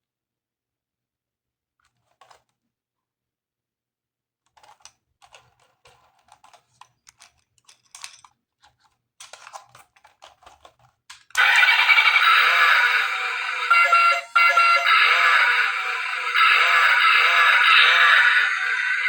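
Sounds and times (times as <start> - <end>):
plastic toy pieces clicking: 4.5 - 11.4.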